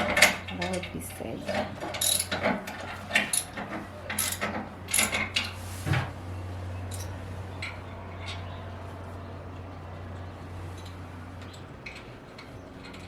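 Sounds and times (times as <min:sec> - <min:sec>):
metal tools clinking: 0:00.2 - 0:05.6, 0:06.9 - 0:08.5.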